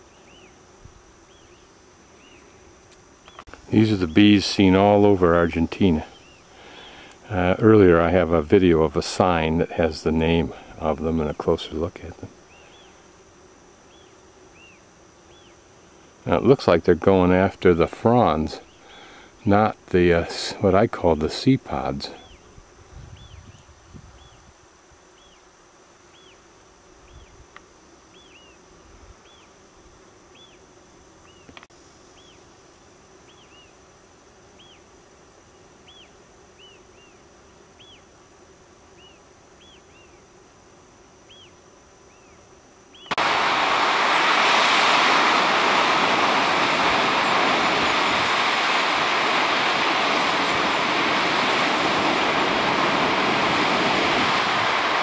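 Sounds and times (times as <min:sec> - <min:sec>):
bees humming: 0:00.0 - 0:55.0
waterfall rushing: 0:43.2 - 0:55.0.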